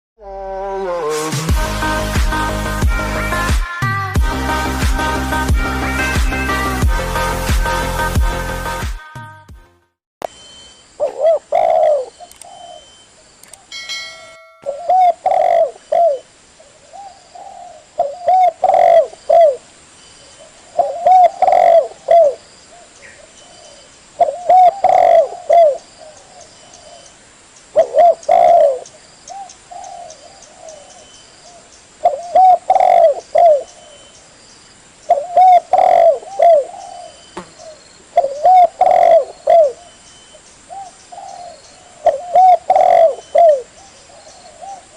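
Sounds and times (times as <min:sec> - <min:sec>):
dove cooing: 0:11.0 - 0:12.8, 0:14.6 - 0:19.7, 0:20.4 - 0:23.3, 0:24.2 - 0:27.0, 0:27.8 - 0:33.9, 0:35.1 - 0:39.9, 0:40.7 - 0:44.9.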